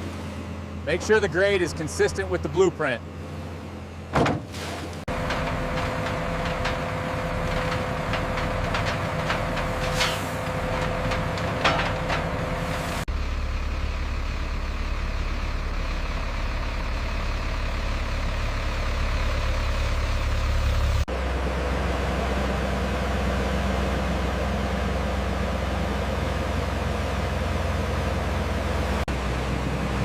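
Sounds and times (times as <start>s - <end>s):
diesel machinery droning: 0.0s - 30.0s
machinery squeaks and clanks: 4.8s - 13.0s.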